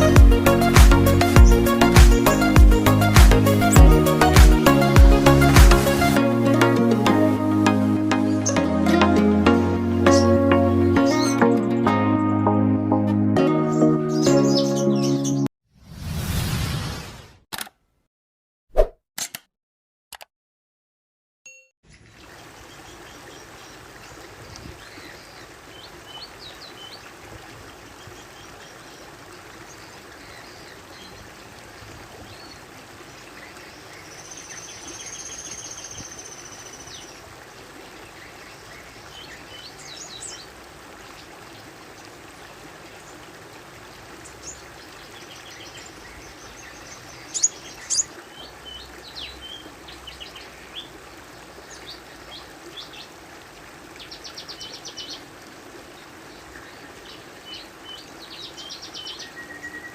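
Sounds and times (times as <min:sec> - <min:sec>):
songbirds chirping: 0:07.6 - 0:12.6, 0:13.4 - 0:15.5, 0:21.9 - 0:59.9
high trilling bird call: 0:47.3 - 0:48.1.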